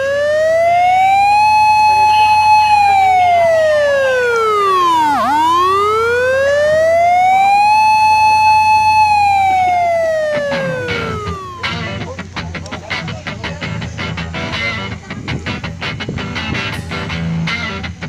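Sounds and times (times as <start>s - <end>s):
emergency siren wailing: 0.0s - 12.2s.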